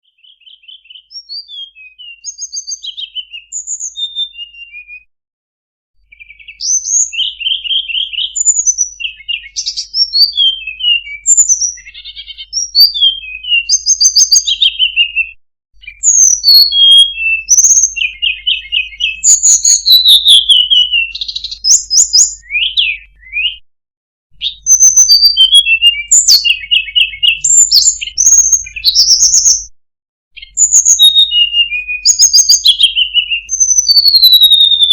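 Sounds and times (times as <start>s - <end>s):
bird singing: 0.0s - 5.1s, 6.0s - 23.6s, 24.3s - 29.7s, 30.3s - 34.9s.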